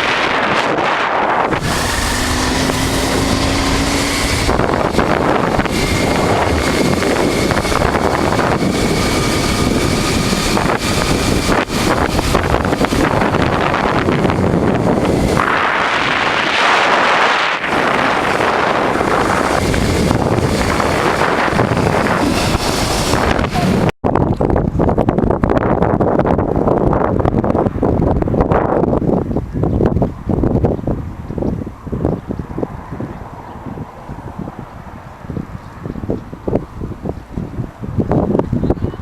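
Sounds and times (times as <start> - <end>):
motorcycle engine running: 0.0 - 23.9
wind buffeting microphone: 0.0 - 39.0.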